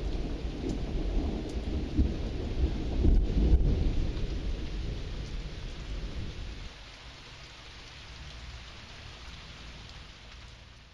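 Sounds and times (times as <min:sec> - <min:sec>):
thunder rumbling: 0:00.0 - 0:06.6
rain hiss: 0:00.0 - 0:10.9.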